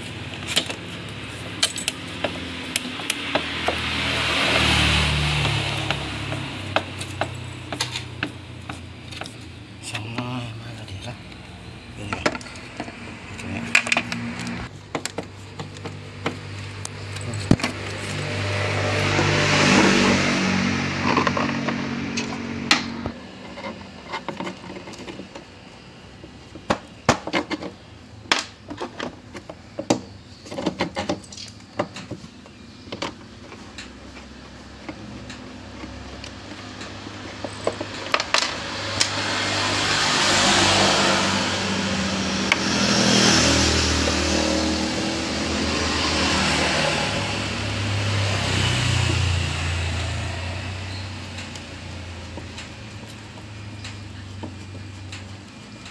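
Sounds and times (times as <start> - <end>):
clicks of hand tools and parts: 0.3 - 4.8, 5.4 - 10.4, 12.0 - 18.3, 21.0 - 25.6, 26.5 - 39.3, 51.2 - 55.9.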